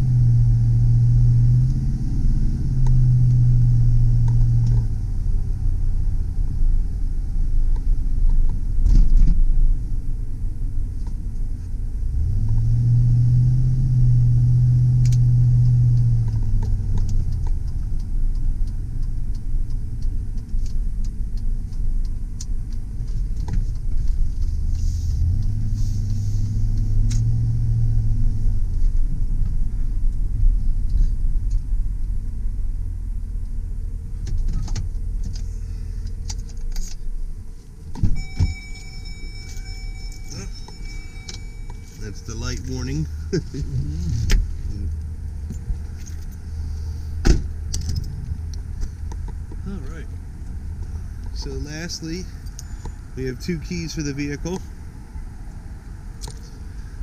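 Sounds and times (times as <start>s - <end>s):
road rumble: 0.0s - 57.0s
pickup truck engine accelerating: 37.9s - 57.0s.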